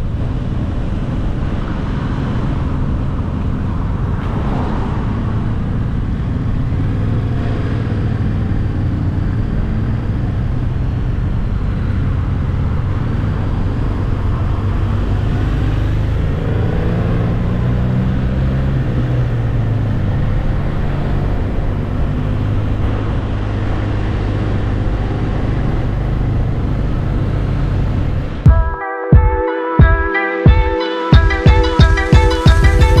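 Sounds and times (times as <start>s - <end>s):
wind noise: 0.0s - 28.5s, 31.2s - 33.0s
road noise: 0.0s - 28.6s, 29.6s - 33.0s
motorcycle engine running: 31.2s - 33.0s.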